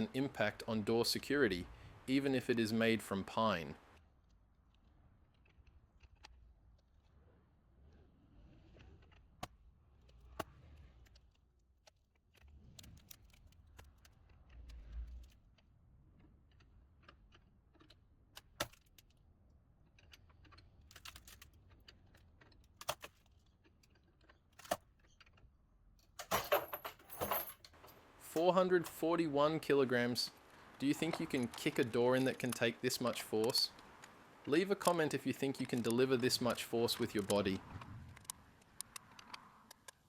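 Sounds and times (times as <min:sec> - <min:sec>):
faint clicks and taps: 0:30.3 - 0:40.0.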